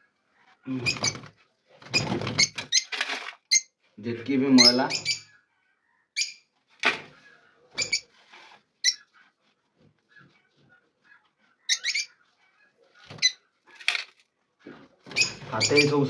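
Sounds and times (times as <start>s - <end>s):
pet birds chirping: 4.5s - 8.2s, 8.8s - 9.4s, 10.0s - 13.9s.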